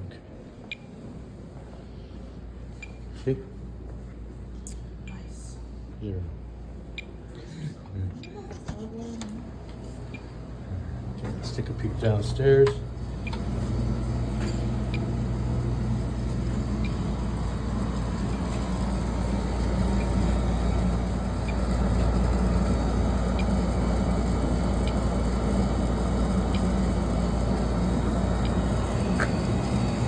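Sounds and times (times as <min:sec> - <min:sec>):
oil furnace rumbling: 0:10.8 - 0:30.0.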